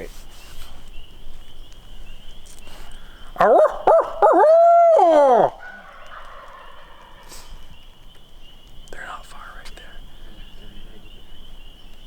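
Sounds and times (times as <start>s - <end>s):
coyote howl call: 3.4s - 7.4s.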